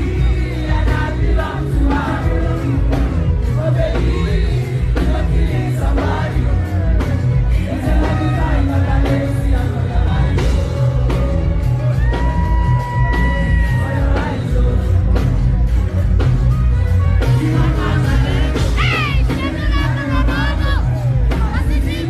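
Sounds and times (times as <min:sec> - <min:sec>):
person singing: 0:00.0 - 0:16.0
afrobeats music over sound system: 0:00.0 - 0:22.0
heavy pounding bass beat: 0:00.0 - 0:22.0
crowd shouting: 0:03.5 - 0:09.2, 0:11.0 - 0:14.5.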